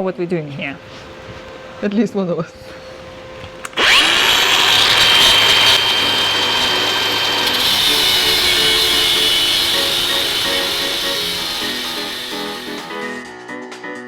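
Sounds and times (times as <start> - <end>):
power tool whining: 3.6 - 13.2
background music with stepped notes: 11.2 - 14.0.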